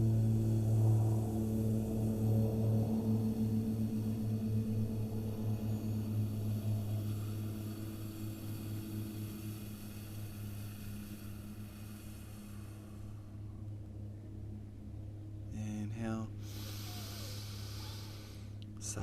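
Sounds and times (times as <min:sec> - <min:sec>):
low droning tone: 0:00.0 - 0:19.0.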